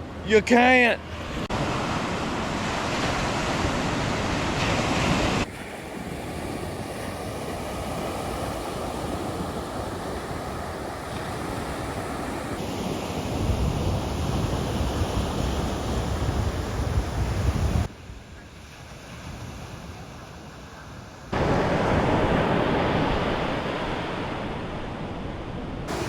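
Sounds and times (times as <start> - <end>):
ocean surf washing onto beach: 0.2 - 26.0
wind buffeting microphone: 13.2 - 18.5.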